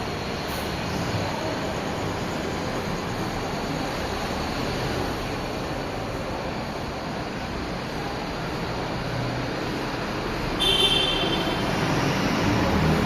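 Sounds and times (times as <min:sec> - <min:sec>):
train approaching rumble: 0:00.0 - 0:13.0.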